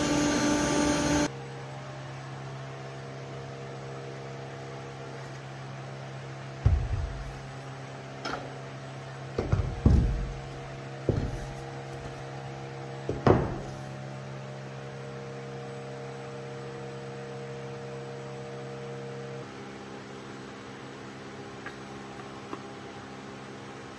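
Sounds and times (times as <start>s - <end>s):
electrical machine hum: 0.0s - 23.9s
sharp knocks: 6.6s - 7.4s, 9.4s - 11.5s, 13.1s - 13.7s.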